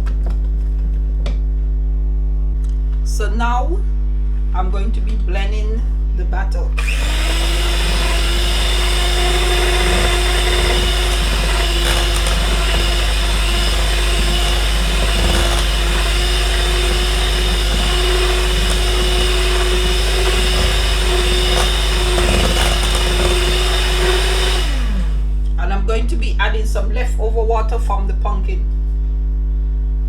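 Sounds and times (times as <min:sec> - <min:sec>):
electric blender motor running: 0:06.8 - 0:25.4.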